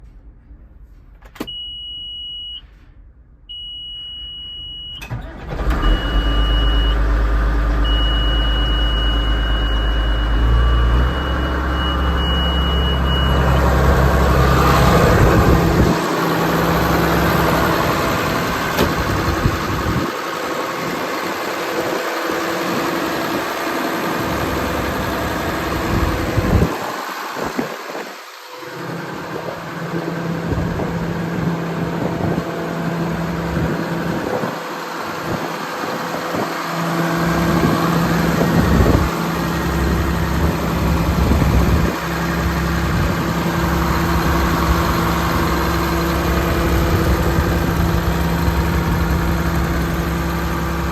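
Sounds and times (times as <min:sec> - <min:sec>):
diesel tractor engine starting and running: 0:00.0 - 0:50.9
high warning beep: 0:01.4 - 0:02.7, 0:03.5 - 0:05.1, 0:07.9 - 0:13.6.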